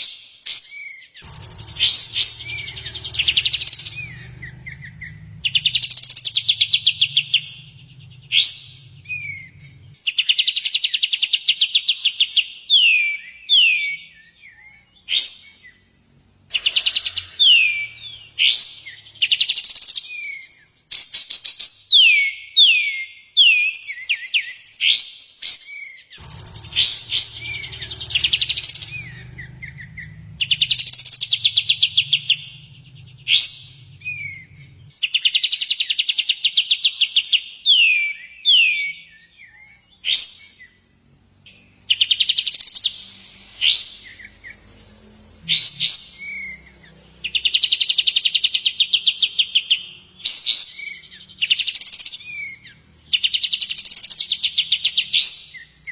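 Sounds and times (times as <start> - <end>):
songbird singing buzzy trills: 0.0 - 21.4, 25.9 - 55.9.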